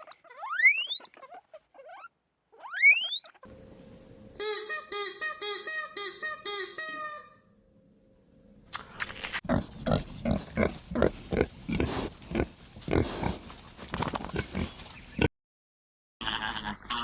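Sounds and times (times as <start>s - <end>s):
animal making rough calls: 9.5s - 15.3s.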